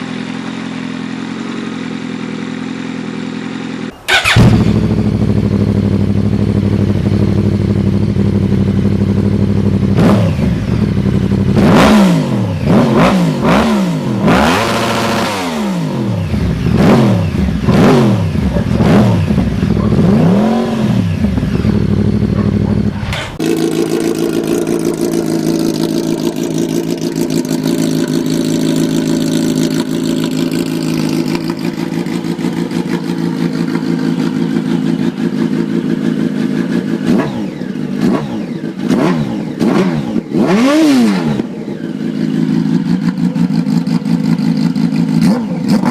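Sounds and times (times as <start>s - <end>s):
motorcycle engine idling high-pitched: 0.0s - 45.9s
motorcycle engine revving: 0.0s - 45.9s.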